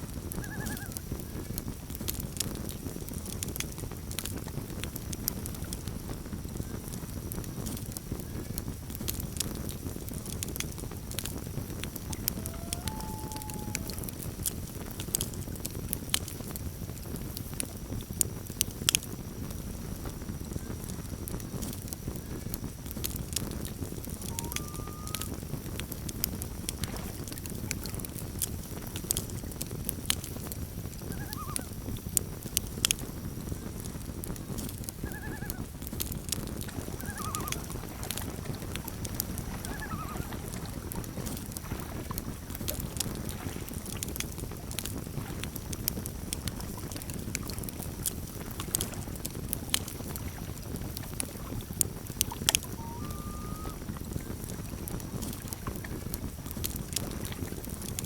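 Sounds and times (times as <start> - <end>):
campfire crackling and popping: 0.0 - 58.0
faint short animal calls: 0.4 - 1.0, 12.2 - 14.2, 24.2 - 25.4, 31.1 - 31.7, 37.0 - 37.8, 39.6 - 40.5, 52.6 - 53.8.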